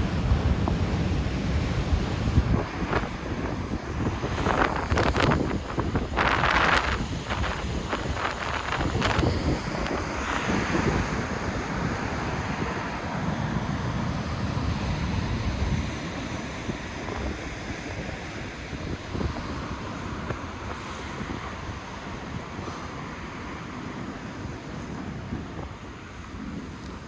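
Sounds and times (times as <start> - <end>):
surf breaking against cliffs: 0.0 - 27.0
wind buffeting microphone: 0.0 - 27.0.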